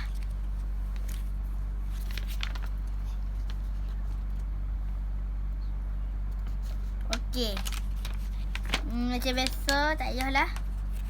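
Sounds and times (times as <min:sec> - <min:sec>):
low electrical hum: 0:00.0 - 0:11.0
small items rustling and clicking: 0:01.9 - 0:04.5, 0:06.4 - 0:11.0.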